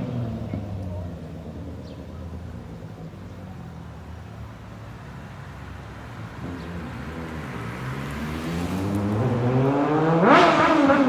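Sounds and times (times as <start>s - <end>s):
motorcycle engine revving: 0.0s - 2.0s, 5.5s - 11.0s.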